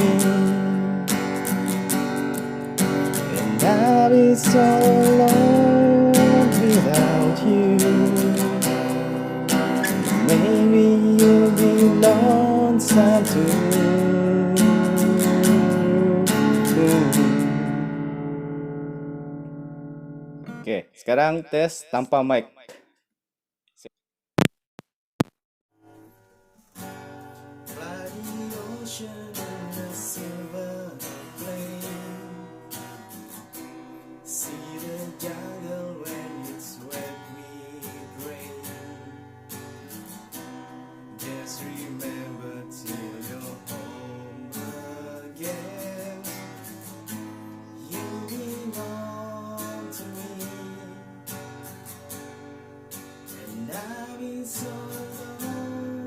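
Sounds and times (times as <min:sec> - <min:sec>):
man singing: 0:00.0 - 0:01.1, 0:03.2 - 0:09.2, 0:09.8 - 0:17.9, 0:27.7 - 0:32.5, 0:34.3 - 0:39.1, 0:41.2 - 0:46.8, 0:47.8 - 0:51.1, 0:53.4 - 0:56.0
acoustic guitar strumming: 0:00.0 - 0:20.7, 0:25.8 - 0:56.0.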